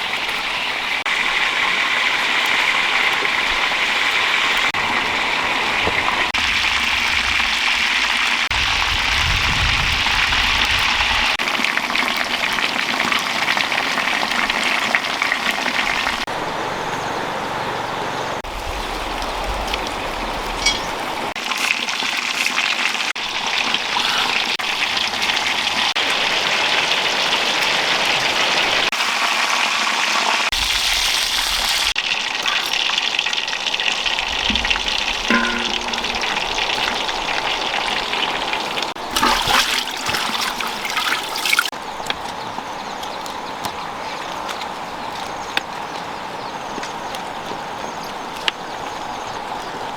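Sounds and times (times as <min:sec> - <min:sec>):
water running and splashing: 0:00.0 - 0:17.6, 0:18.4 - 0:49.9
knocks: 0:34.4 - 0:37.0.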